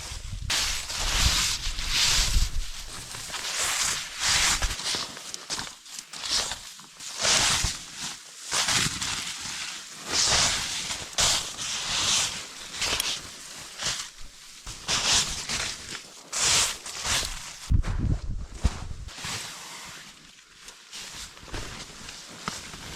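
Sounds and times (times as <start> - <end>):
footsteps crunching in snow: 8.5 - 22.9.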